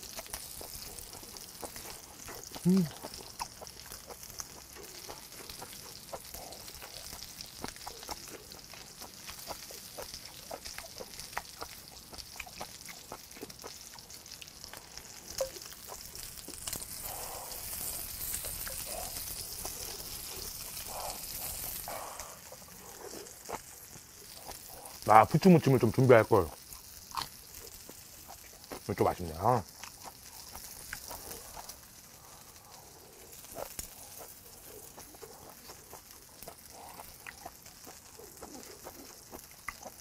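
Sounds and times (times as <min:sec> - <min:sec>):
frying sizzle with crackling pops: 0:00.0 - 0:40.0.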